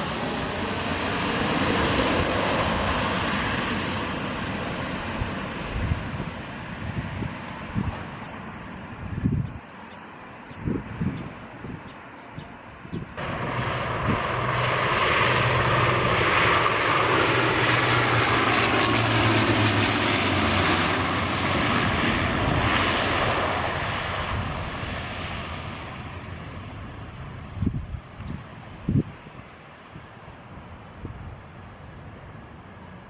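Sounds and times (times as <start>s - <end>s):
jet airliner passing overhead: 0.0s - 33.0s
high engine whine: 10.1s - 24.7s.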